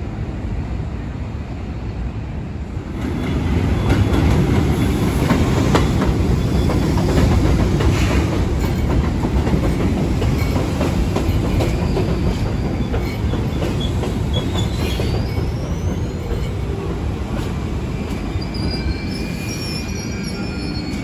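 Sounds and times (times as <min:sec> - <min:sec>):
train wheel rumble: 0:02.6 - 0:21.0
rail-joint clicks: 0:03.0 - 0:18.9
wheel squeals: 0:11.6 - 0:16.8, 0:18.1 - 0:21.0.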